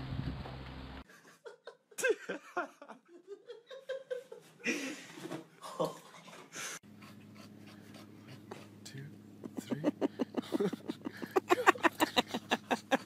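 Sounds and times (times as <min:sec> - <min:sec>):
person laughing: 0:01.1 - 0:06.1, 0:09.4 - 0:13.0.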